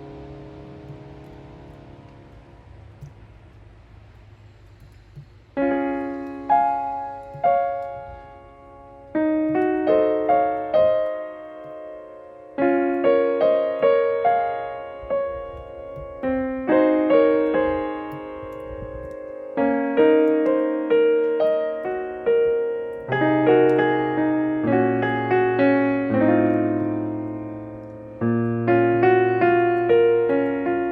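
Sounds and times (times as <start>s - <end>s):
faint hiss: 0.0s - 30.9s
slow piano chords: 0.0s - 30.9s.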